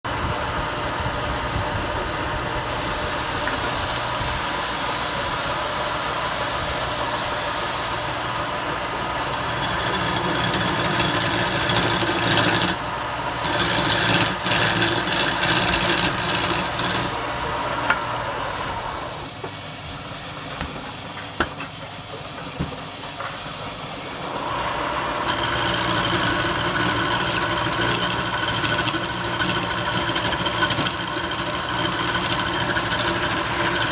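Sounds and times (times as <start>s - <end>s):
wood lathe running: 8.7s - 19.2s, 24.3s - 33.9s
tool rasping against spinning wood: 9.0s - 19.2s, 25.2s - 33.9s.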